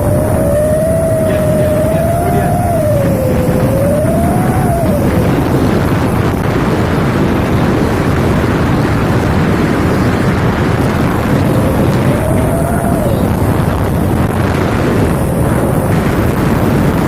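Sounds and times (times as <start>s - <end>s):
howling tone rising and falling: 0.0s - 6.6s, 10.1s - 17.0s
truck exhaust running loud: 0.0s - 17.0s.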